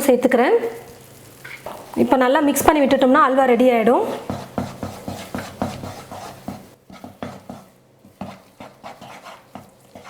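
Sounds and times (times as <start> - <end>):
spoon scraping thick sticky mixture: 4.1 - 10.0.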